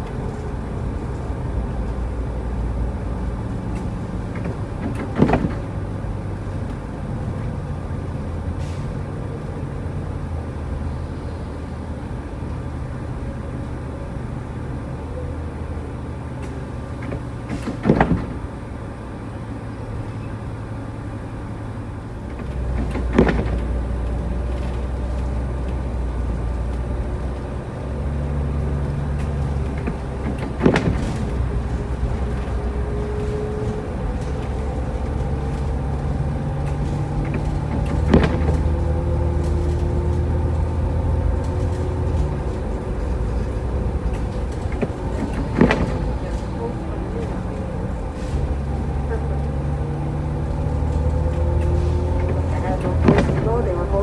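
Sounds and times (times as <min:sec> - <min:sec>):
engine and road rumble: 0:00.0 - 0:54.0
sharp knocks: 0:17.0 - 0:18.5, 0:22.4 - 0:23.8, 0:29.2 - 0:33.2, 0:36.6 - 0:39.1.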